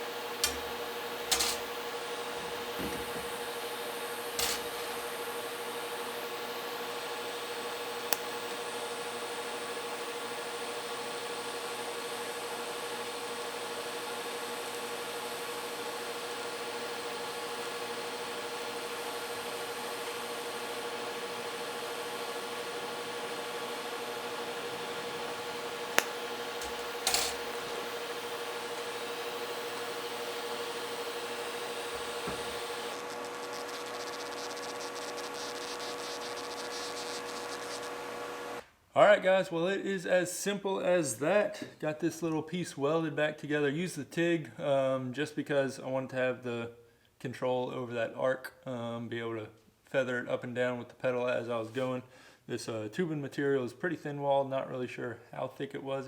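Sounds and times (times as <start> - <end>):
welding arc buzzing hum: 0.0 - 38.7
short clicks: 0.4 - 1.8, 4.4 - 5.0.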